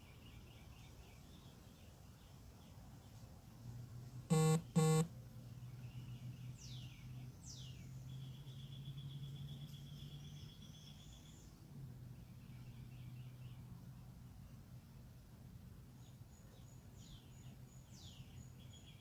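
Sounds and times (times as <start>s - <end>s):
low steady hum: 4.2s - 5.7s
buzzy horn honks: 4.3s - 5.1s.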